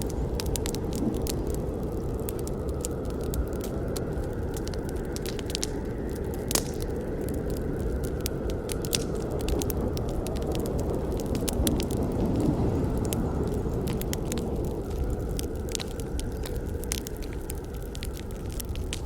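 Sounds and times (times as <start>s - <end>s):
low rumble of flames: 0.0s - 19.0s
wood fire crackling and popping: 0.0s - 19.0s.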